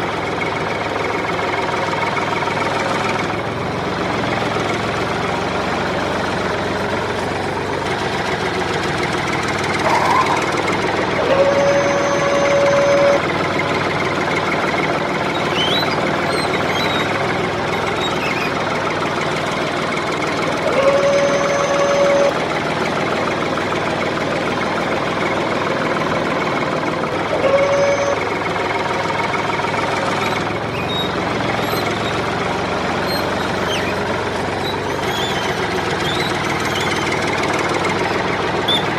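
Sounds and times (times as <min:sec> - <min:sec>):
small motor rattling buzz: 0:02.2 - 0:38.9
short steady tones: 0:09.8 - 0:13.3, 0:20.6 - 0:22.4, 0:27.2 - 0:28.4.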